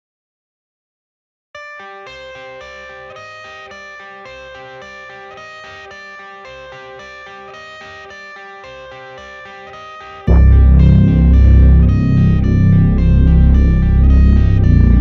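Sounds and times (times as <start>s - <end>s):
plucked guitar music: 1.8s - 15.0s
soft low pulse: 10.3s - 15.0s.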